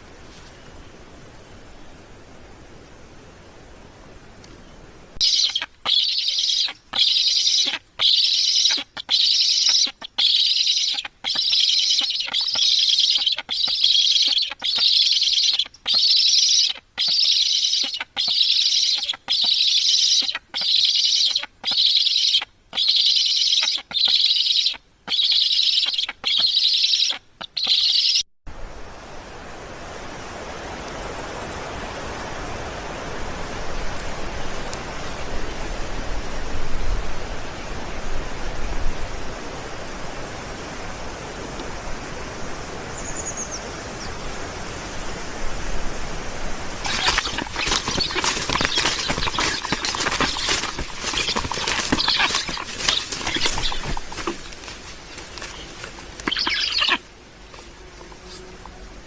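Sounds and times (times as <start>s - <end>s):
stork rasping hissing call: 5.2s - 28.2s, 46.8s - 58.9s.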